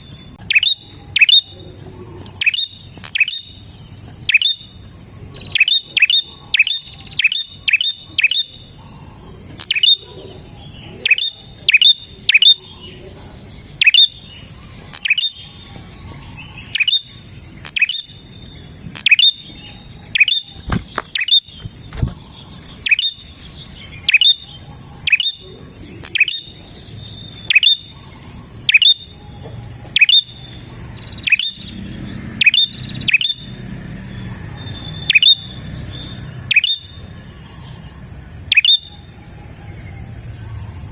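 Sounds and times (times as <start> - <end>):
bird calling sharp high notes: 0.0 - 1.6, 2.3 - 3.6, 31.1 - 33.5, 36.2 - 37.0, 38.5 - 39.1.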